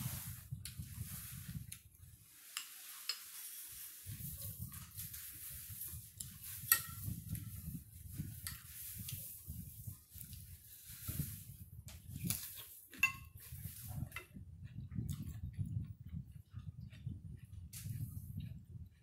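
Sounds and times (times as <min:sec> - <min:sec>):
chewing and mouth sounds: 0:12.4 - 0:19.0
spoon clinking on ceramic bowls: 0:13.0 - 0:13.4.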